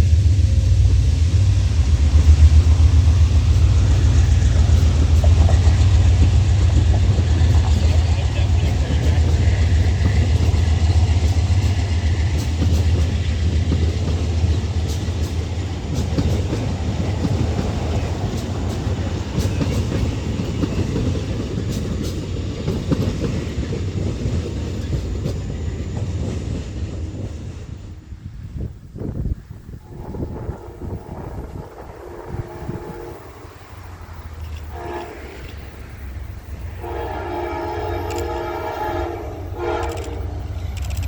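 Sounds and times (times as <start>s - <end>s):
railcars rumbling past: 0.0s - 41.0s
train engine hum: 0.0s - 41.0s
wheels clicking over rail joints: 2.0s - 27.8s.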